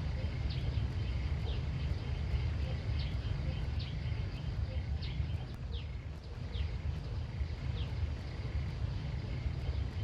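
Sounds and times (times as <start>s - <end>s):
bird chirping: 0.0s - 10.0s
steady low rumble: 0.0s - 10.0s.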